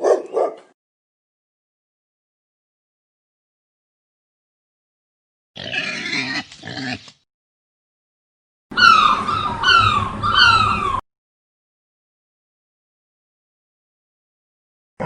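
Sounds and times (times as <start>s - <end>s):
whining dog-like animal cries: 8.7s - 11.0s.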